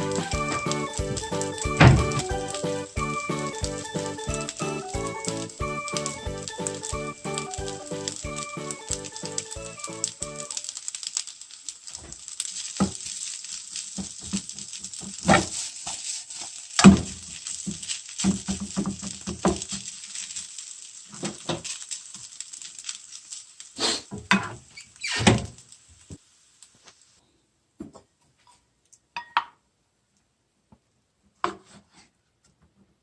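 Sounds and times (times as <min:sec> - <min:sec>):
rice sizzling in a frying pan: 0:00.0 - 0:27.2
spatula scraping and knocking pan: 0:13.9 - 0:19.9.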